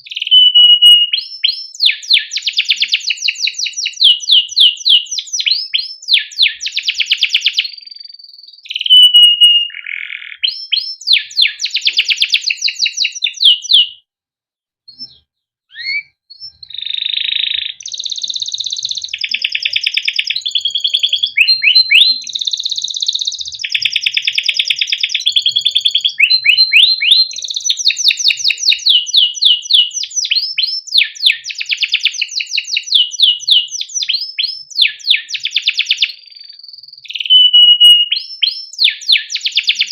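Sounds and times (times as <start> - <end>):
canary singing trills: 0.0 - 14.0, 14.9 - 39.9.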